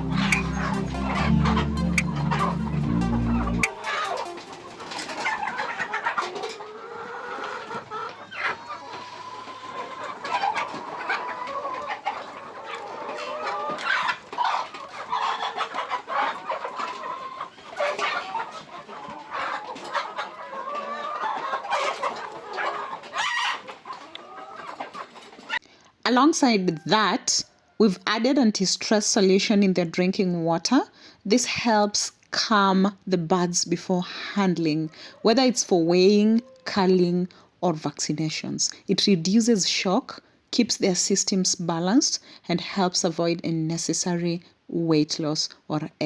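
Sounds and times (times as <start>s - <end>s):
hens clucking and calling: 0.0s - 25.6s.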